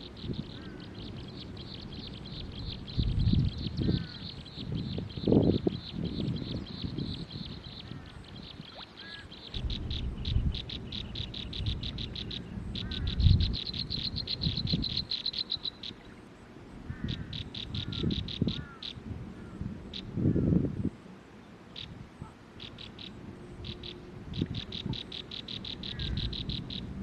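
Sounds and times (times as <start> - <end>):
bird chirping rapidly: 0.0 - 16.0, 22.6 - 26.9.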